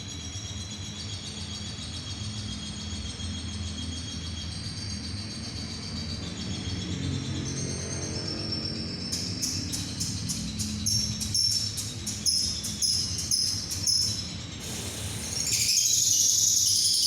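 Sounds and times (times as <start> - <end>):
lovebird trilling: 9.1 - 17.0.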